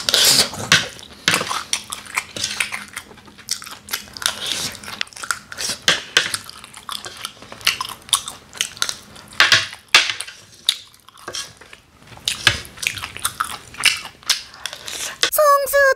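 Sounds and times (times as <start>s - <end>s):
chewing food: 0.0s - 15.2s
plastic spoon scraping a plate: 11.2s - 11.7s.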